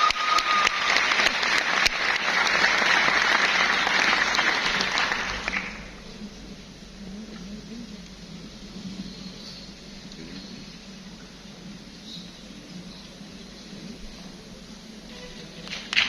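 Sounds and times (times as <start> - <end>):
audience applauding: 0.0 - 6.0, 15.6 - 16.0.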